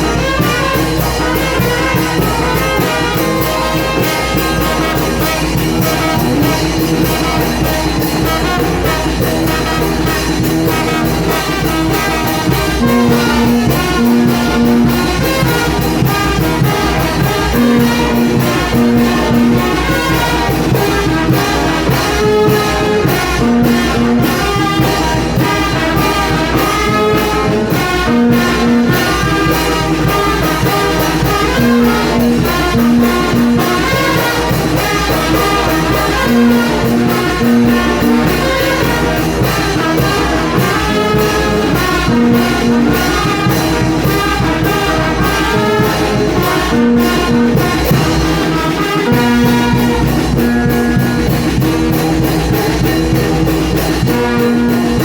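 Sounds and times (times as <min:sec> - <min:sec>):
brass band playing: 0:00.0 - 0:55.0.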